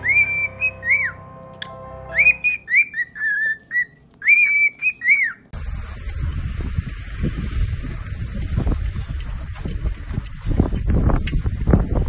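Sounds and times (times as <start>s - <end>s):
whistled notes: 0.0s - 5.5s
wind rumbling on microphone: 5.5s - 12.0s.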